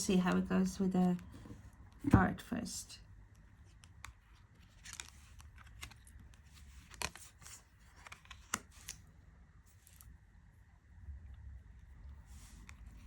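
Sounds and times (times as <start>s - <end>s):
cards rustling: 3.5s - 10.2s, 12.0s - 13.0s.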